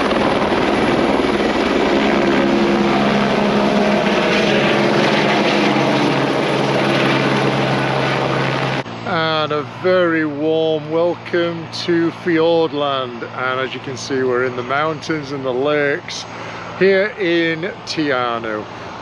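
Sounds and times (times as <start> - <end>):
helicopter rotor chopping: 0.0 - 19.0.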